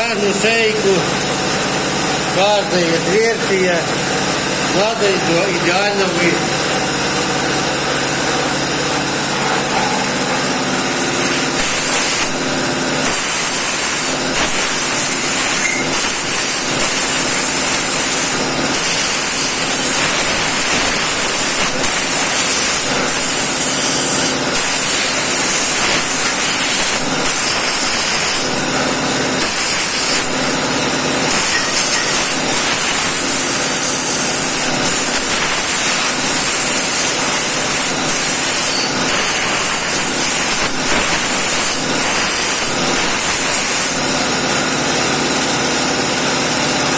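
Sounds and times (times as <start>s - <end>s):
compressed air blow gun hissing: 9.0s - 44.1s.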